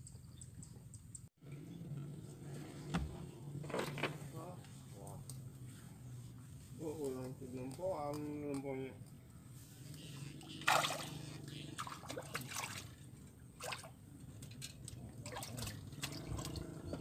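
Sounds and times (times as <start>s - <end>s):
low steady hum: 0.0s - 17.0s
water splashing and dripping: 10.6s - 11.2s, 11.8s - 17.0s.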